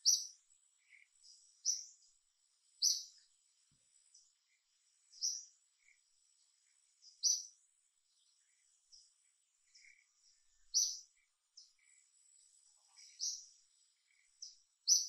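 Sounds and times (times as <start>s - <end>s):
high bird chirps: 0.0s - 2.0s, 2.8s - 3.2s, 5.1s - 6.0s, 7.0s - 7.5s, 9.7s - 11.9s, 12.9s - 13.5s, 14.1s - 15.0s.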